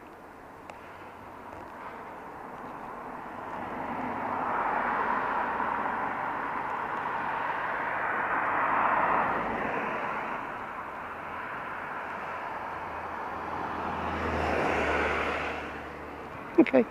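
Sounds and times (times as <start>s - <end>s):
passing vehicle road noise: 0.5s - 16.9s.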